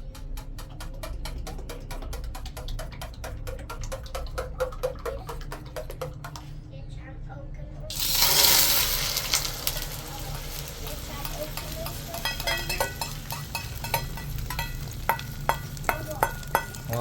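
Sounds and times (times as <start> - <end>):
food sizzling in a frying pan: 7.9 - 17.0
metal utensil tapping a pan: 7.9 - 17.0.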